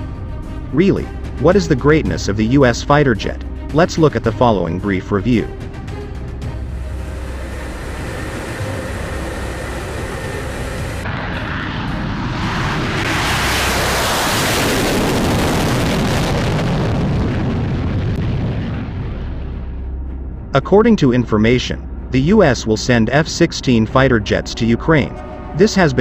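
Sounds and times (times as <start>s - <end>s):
jet fighter engine passing: 5.4s - 18.5s.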